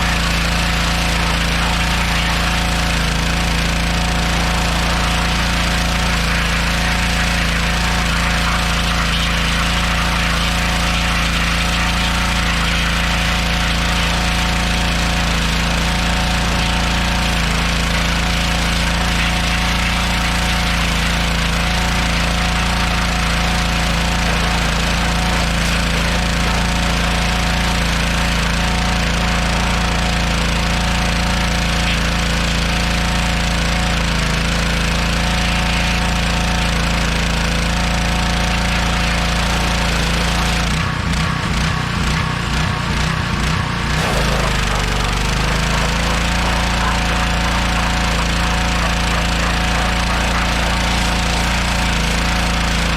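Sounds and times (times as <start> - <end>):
engine running steadily: 0.0 - 52.9.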